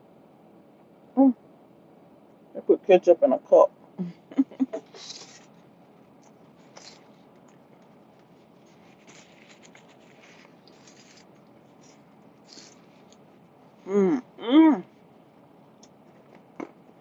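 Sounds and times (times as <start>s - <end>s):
rustling and scratching while eating: 4.7s - 13.9s, 14.8s - 17.0s.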